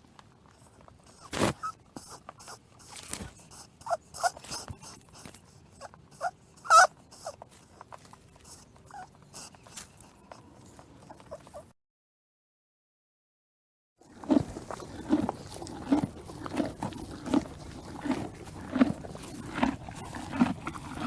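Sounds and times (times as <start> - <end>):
small animal squeaking and whimpering: 0.6 - 11.7.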